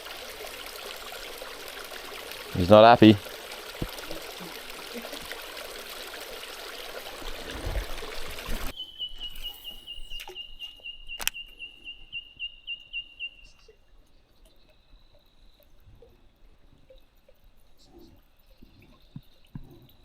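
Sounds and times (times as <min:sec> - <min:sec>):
running water rushing: 0:00.0 - 0:10.2
high even chirping call: 0:06.8 - 0:13.8
sharp click: 0:09.2 - 0:11.5.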